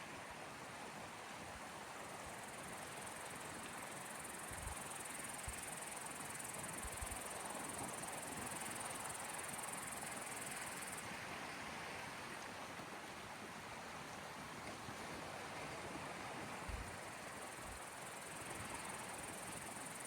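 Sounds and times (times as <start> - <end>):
small waves on shore: 0.0 - 20.0
insect trill: 17.2 - 20.0.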